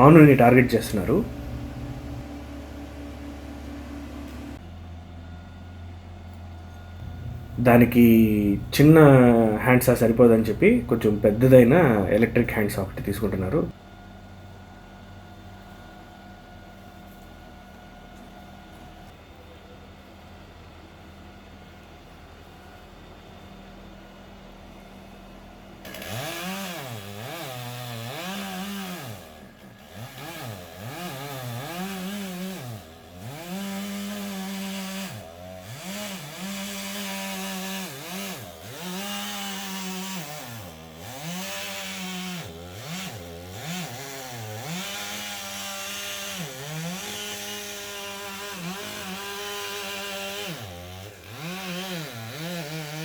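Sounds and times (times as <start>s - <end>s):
chainsaw cutting wood: 0.0s - 4.7s, 7.0s - 13.8s, 25.8s - 53.0s
steady low hum: 0.0s - 19.9s.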